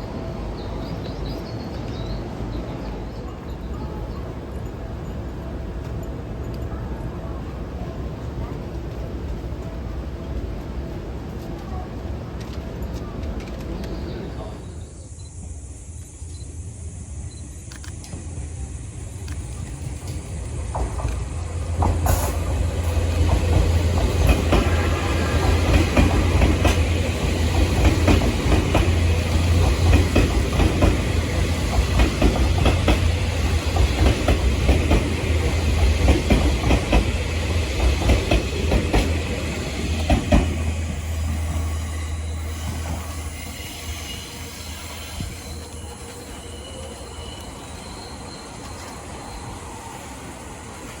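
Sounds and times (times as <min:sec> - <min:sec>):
train wheels clacking over rail joints: 0:19.2 - 0:46.4
wheel squeal: 0:40.6 - 0:50.2.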